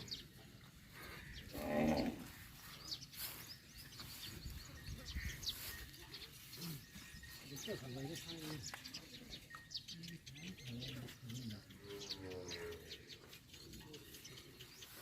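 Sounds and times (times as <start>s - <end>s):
birds chirping: 0.0s - 15.0s
farm animal call: 0.9s - 2.7s.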